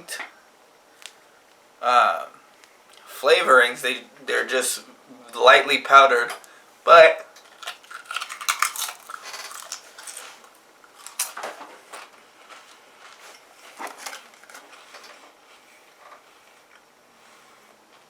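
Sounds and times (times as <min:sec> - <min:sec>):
person chewing crisps: 0:07.4 - 0:11.5, 0:12.5 - 0:14.8.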